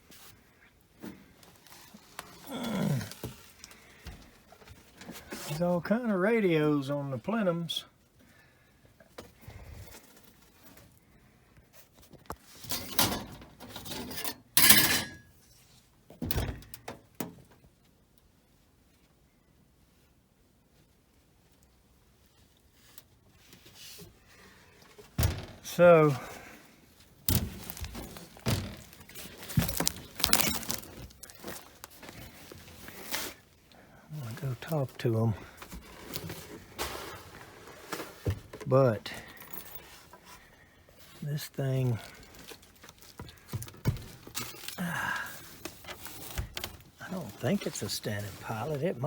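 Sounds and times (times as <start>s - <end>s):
short rustle: 22.3s - 33.6s
faint footsteps: 27.0s - 32.5s.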